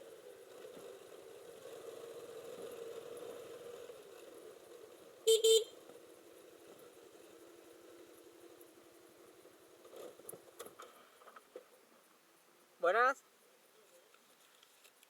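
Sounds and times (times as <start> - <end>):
vehicle horn toots: 5.3 - 5.7.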